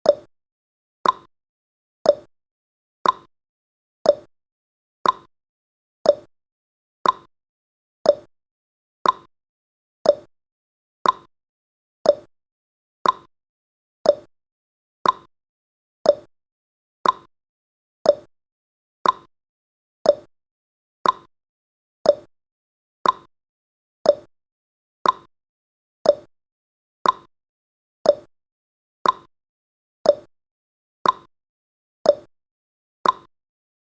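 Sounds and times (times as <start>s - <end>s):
timer ticking: 0.0s - 0.3s, 1.0s - 1.3s, 2.0s - 2.3s, 3.0s - 3.3s, 4.0s - 4.3s, 5.0s - 5.3s, 6.0s - 6.3s, 7.0s - 7.3s, 8.0s - 8.3s, 9.0s - 9.3s, 10.0s - 10.3s, 11.0s - 11.3s, 12.0s - 12.3s, 13.0s - 13.3s, 14.0s - 14.3s, 15.0s - 15.3s, 16.0s - 16.3s, 17.0s - 17.3s, 18.0s - 18.3s, 19.0s - 19.3s, 20.0s - 20.3s, 21.0s - 21.3s, 22.0s - 22.3s, 23.0s - 23.3s, 24.0s - 24.3s, 25.0s - 25.3s, 26.0s - 26.3s, 27.0s - 27.3s, 28.0s - 28.3s, 29.0s - 29.3s, 30.0s - 30.3s, 31.0s - 31.3s, 32.0s - 32.3s, 33.0s - 33.3s.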